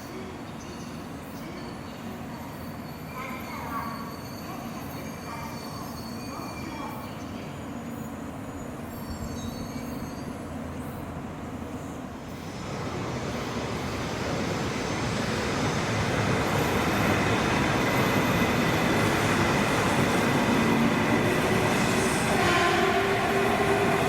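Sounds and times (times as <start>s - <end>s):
train rushing running noise: 11.2s - 24.0s.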